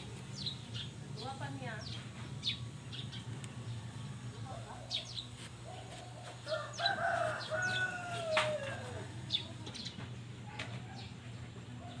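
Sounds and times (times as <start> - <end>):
small birds chirping: 0.0 - 12.0
steady low hum: 0.0 - 12.0
bird crowing call: 5.6 - 9.2.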